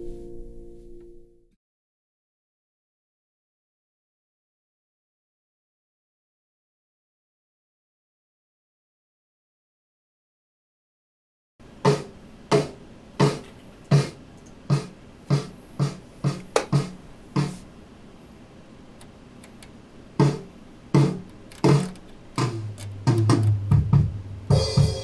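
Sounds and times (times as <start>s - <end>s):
low sustained note: 0.0s - 1.5s
acoustic drum hits: 20.2s - 25.0s.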